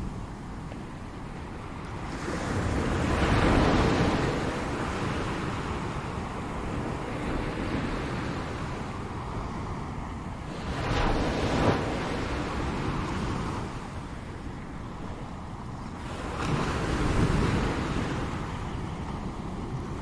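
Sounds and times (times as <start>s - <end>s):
ocean waves breaking on shore: 0.0s - 20.0s.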